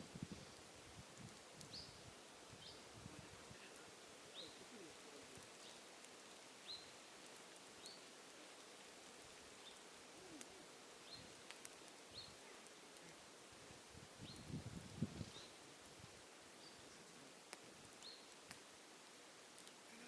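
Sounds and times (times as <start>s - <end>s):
bird calling: 4.3s - 5.9s, 9.6s - 11.4s
faint ticks: 5.3s - 13.2s, 16.6s - 18.7s, 19.4s - 20.0s.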